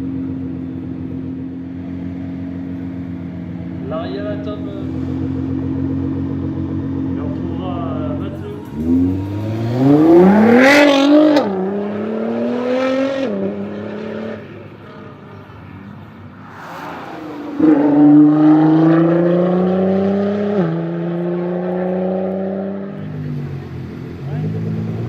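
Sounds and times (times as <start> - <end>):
car engine accelerating hard: 4.1 - 15.1, 16.3 - 25.0.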